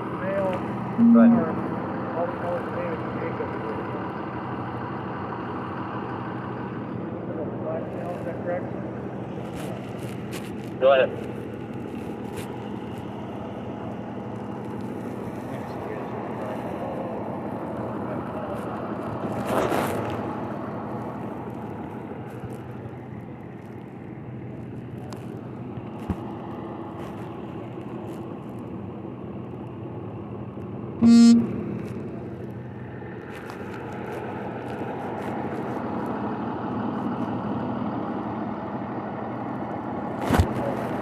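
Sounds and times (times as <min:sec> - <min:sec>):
vehicle and road noise: 0:00.0 - 0:41.0
vehicle horn toot: 0:01.0 - 0:01.6, 0:31.0 - 0:31.6.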